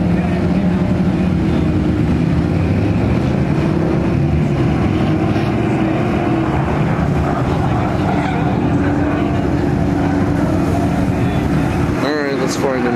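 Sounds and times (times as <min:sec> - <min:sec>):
car engine running: 0:00.0 - 0:12.9
wind buffeting microphone: 0:00.1 - 0:12.9.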